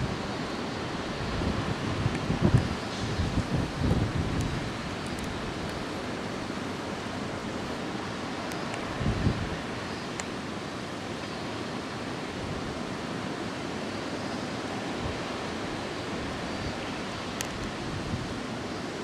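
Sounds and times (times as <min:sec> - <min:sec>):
wind buffeting microphone: 0:00.0 - 0:08.0, 0:08.8 - 0:09.8, 0:15.0 - 0:18.5.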